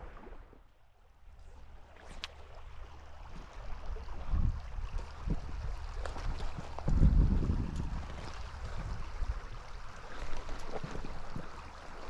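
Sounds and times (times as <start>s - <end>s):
river water flowing: 0.0s - 12.0s
wind buffeting microphone: 2.8s - 12.0s.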